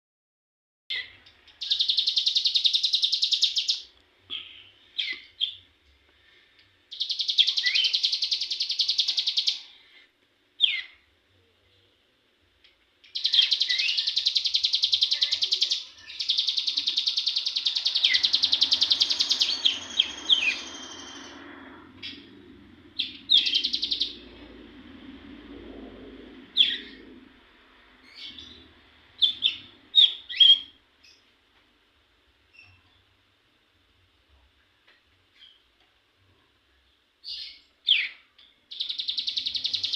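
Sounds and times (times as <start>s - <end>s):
bird chirps: 0.9s - 5.6s, 6.9s - 10.0s, 10.6s - 11.0s, 13.1s - 24.5s, 26.5s - 27.2s, 28.0s - 31.3s, 37.2s - 39.9s
faint low rumble: 15.8s - 37.5s.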